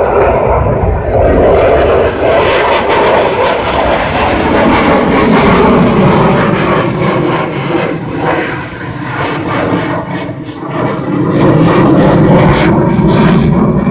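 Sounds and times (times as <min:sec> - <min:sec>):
jet fighter engines roaring: 0:00.0 - 0:13.9.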